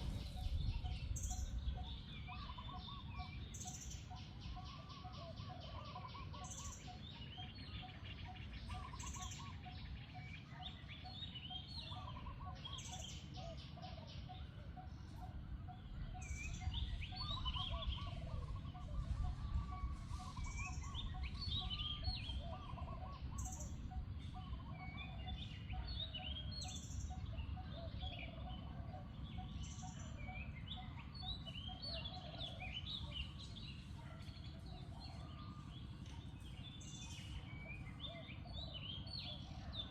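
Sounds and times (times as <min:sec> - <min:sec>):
low rumble: 0:00.0 - 0:02.1
birds chirping and calling: 0:00.0 - 0:39.9.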